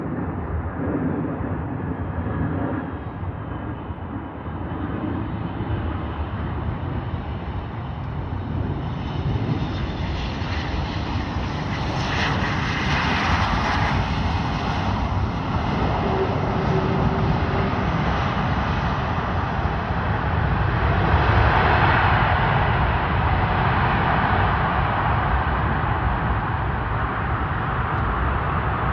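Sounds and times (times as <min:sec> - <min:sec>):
jet engine noise: 0:00.0 - 0:28.9.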